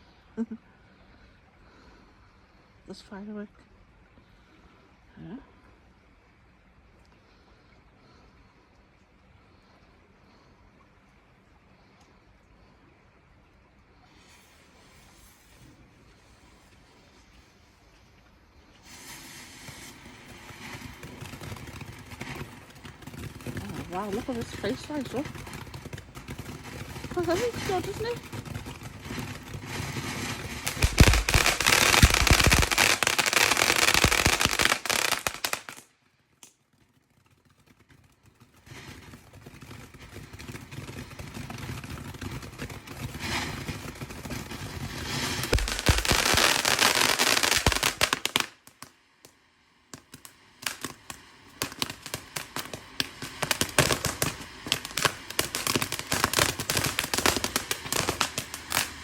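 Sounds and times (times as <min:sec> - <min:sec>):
fireworks crackling and fizzing: 0:14.0 - 0:59.0
fireworks bangs: 0:18.8 - 0:35.9, 0:38.0 - 0:48.9, 0:49.9 - 0:59.0.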